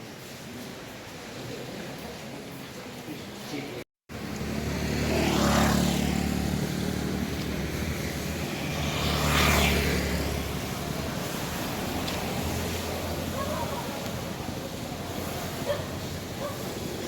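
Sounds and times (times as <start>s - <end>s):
passing vehicle noise: 4.1s - 17.0s
vehicle engine humming: 4.1s - 17.0s.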